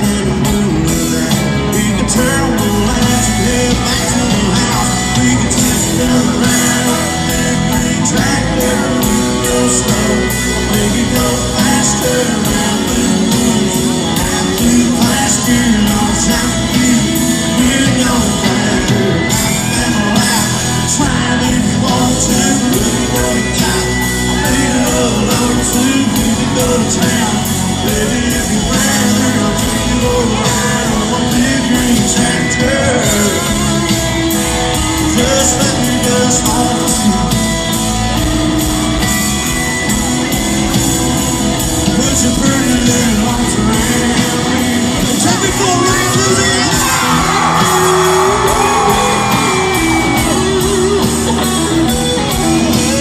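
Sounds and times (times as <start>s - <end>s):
country-rock band playing: 0.0s - 53.0s
lead singer singing: 0.0s - 53.0s
people shouting: 45.3s - 53.0s.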